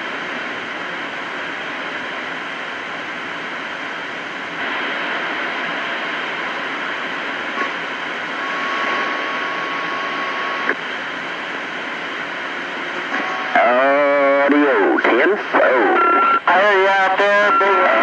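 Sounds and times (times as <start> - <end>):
radio static hiss: 0.0 - 18.0
radio click: 10.6 - 10.8.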